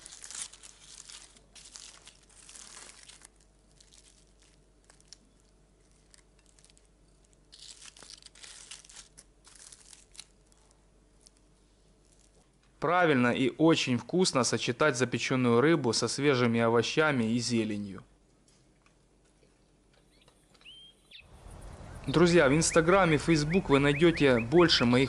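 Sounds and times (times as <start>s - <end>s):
aluminium foil crinkling and tearing: 0.0s - 12.7s.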